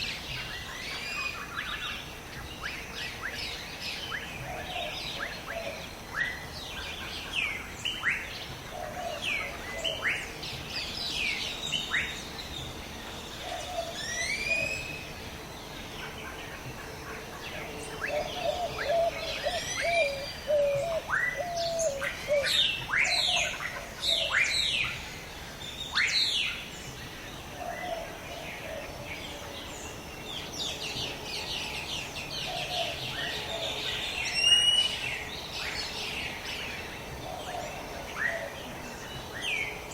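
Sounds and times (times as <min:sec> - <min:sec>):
faint background hiss: 0:00.0 - 0:39.9
wild birds chirping: 0:00.0 - 0:39.9.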